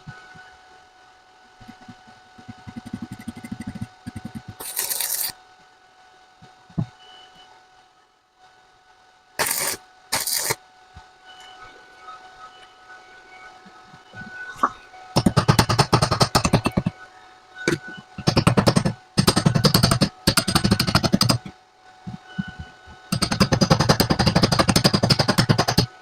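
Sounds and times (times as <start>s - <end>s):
welding arc crackling: 3.6s - 5.3s, 9.4s - 10.6s.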